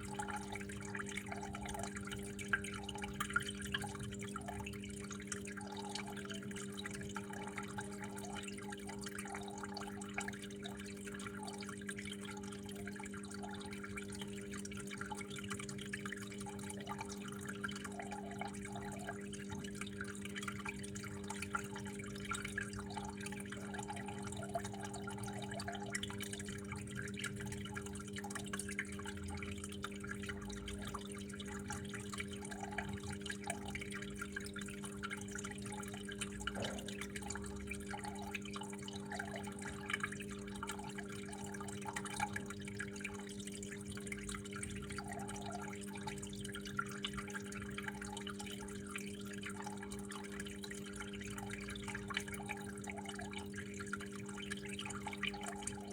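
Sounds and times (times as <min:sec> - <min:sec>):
small water splashes: 0:00.0 - 0:55.9
water trickling and dripping: 0:00.0 - 0:55.9
steady low hum: 0:16.0 - 0:43.2.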